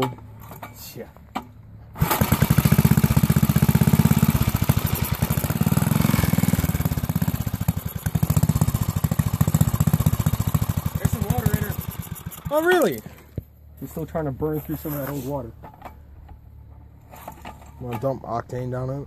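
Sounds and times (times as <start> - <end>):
small engine running loud: 2.0 - 12.8.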